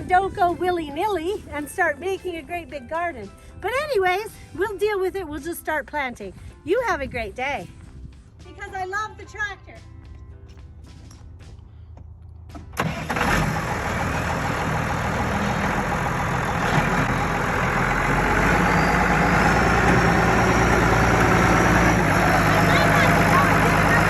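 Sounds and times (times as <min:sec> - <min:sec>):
tractor engine running: 0:12.5 - 0:24.0.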